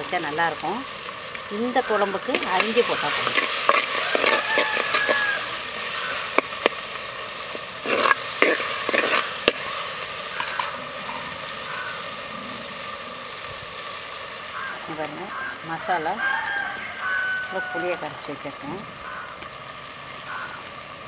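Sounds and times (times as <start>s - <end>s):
vegetables sizzling in hot oil: 0.0s - 21.0s
ladle scraping and clicking on pot: 2.3s - 5.5s, 6.2s - 6.8s, 7.5s - 9.7s.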